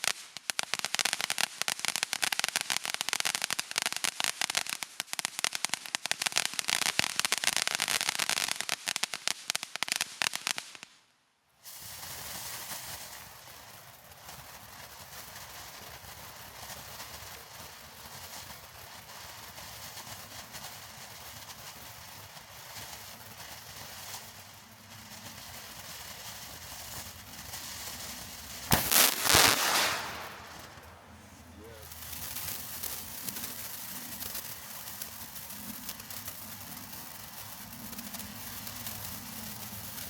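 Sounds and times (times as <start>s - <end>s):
fireworks crackling: 0.0s - 11.0s, 11.6s - 40.0s
loud firework blast: 25.6s - 34.7s.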